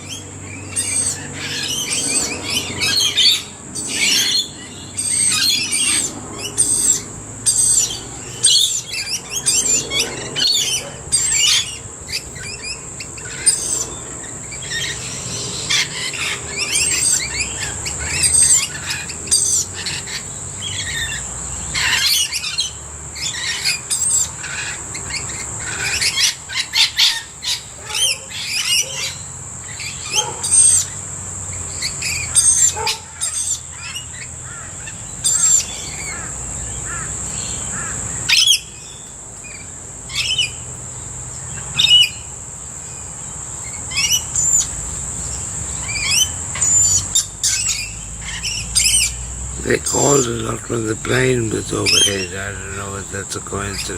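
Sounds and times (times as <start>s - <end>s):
birds shrill calls and squawks: 0.0s - 53.9s.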